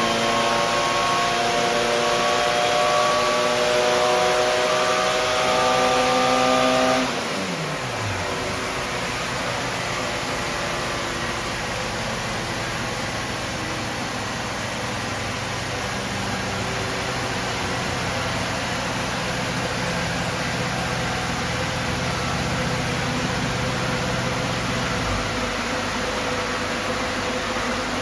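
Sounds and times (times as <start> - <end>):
race car engine running: 0.0 - 28.0
steady rushing hiss: 7.7 - 28.0.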